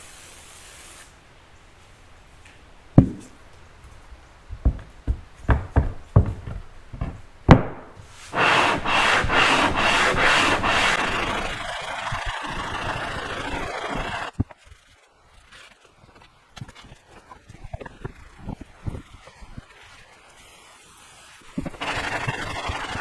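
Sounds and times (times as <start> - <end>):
rasping rubbing strokes: 8.0 - 14.4, 21.6 - 23.0.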